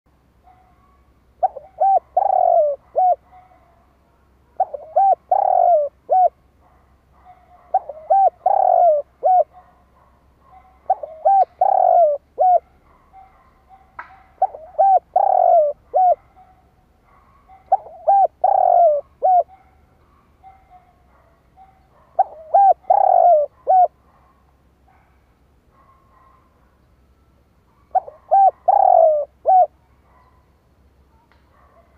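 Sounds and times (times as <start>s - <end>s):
dove cooing: 0.8s - 3.7s, 4.6s - 6.4s, 7.2s - 9.8s, 10.5s - 19.7s, 20.4s - 24.1s, 27.8s - 30.4s.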